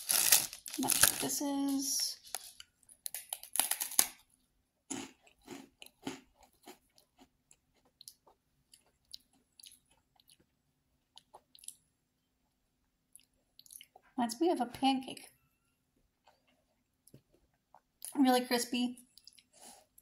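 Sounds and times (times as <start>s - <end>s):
biscuit crunching and chewing: 0.0s - 1.2s, 2.2s - 12.3s, 13.0s - 14.2s, 15.9s - 18.2s, 19.0s - 20.0s.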